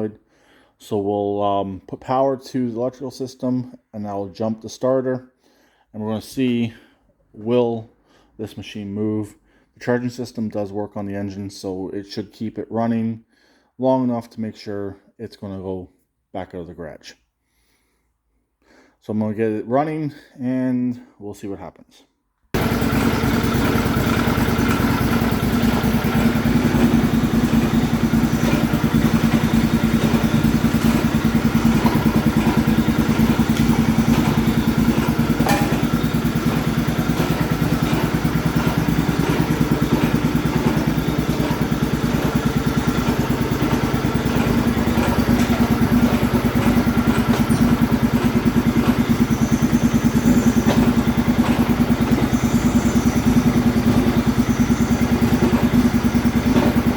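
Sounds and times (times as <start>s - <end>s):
lawn tractor engine running: 22.6s - 56.9s.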